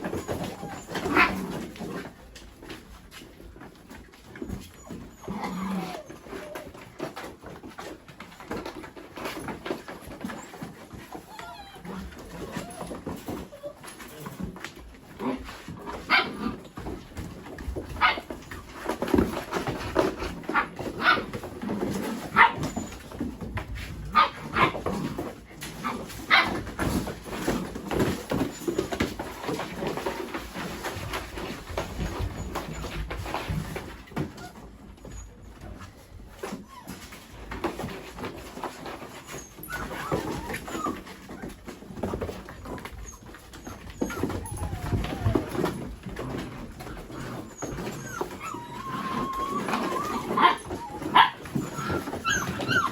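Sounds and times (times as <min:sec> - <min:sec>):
puppies yipping: 0:00.0 - 0:01.6, 0:03.7 - 0:14.0, 0:25.8 - 0:52.9.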